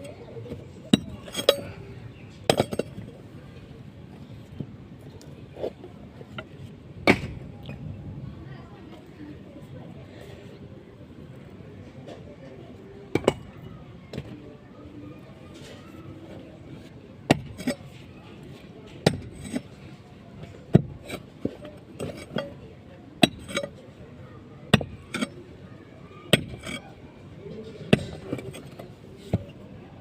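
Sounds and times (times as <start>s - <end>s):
metal tool striking brick: 0.9s - 1.8s, 2.5s - 3.1s, 6.4s - 7.4s, 13.1s - 13.5s, 17.3s - 18.0s, 19.0s - 19.8s, 20.7s - 22.6s, 23.2s - 23.8s, 24.7s - 25.4s, 26.3s - 26.9s, 27.8s - 29.6s.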